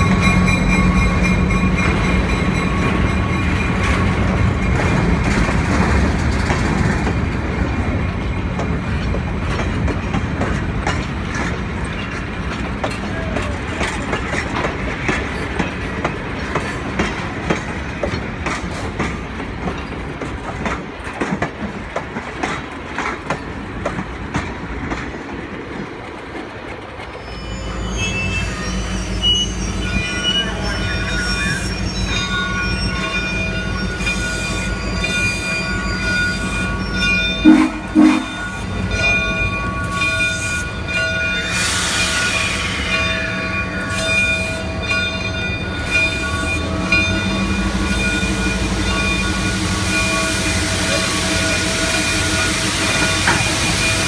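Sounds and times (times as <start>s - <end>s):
train low rumble: 0.0s - 54.0s
wheels clicking over rail joints: 0.2s - 27.2s
high wheel squealing: 27.1s - 37.4s.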